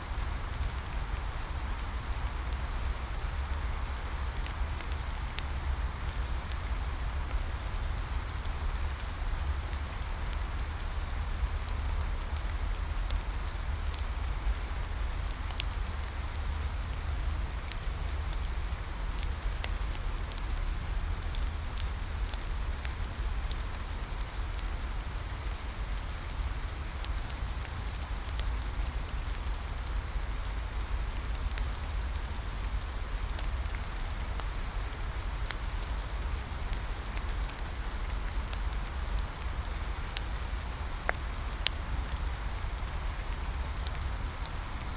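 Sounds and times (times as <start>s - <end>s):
rain falling: 0.0s - 44.9s
wood fire crackling: 0.0s - 44.9s.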